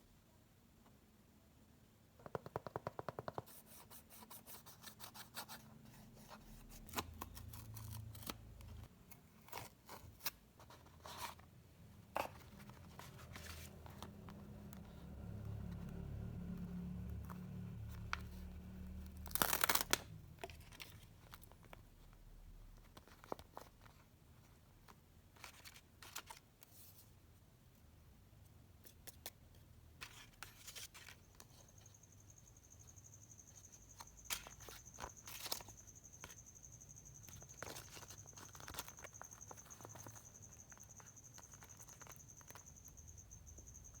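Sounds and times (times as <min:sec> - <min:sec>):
plastic wrap tearing and crinkling: 0:19.2 - 0:20.2.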